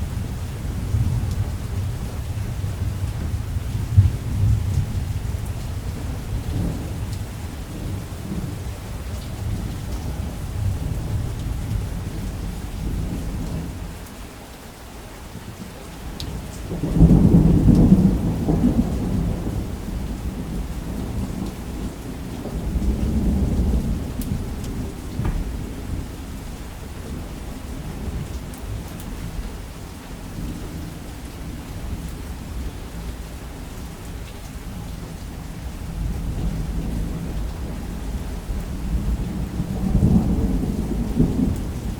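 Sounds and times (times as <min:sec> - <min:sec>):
rumbling thunder: 0:00.0 - 0:13.8, 0:16.7 - 0:29.6, 0:34.7 - 0:41.9
steady rainfall: 0:00.0 - 0:41.9
loud thunderclap: 0:16.8 - 0:26.1, 0:38.8 - 0:41.9.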